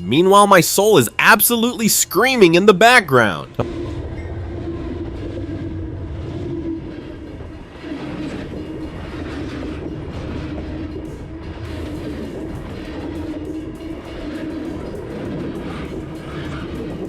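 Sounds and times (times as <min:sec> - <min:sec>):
train rumbling on rails: 0:00.0 - 0:17.0
low droning tone: 0:03.5 - 0:17.0.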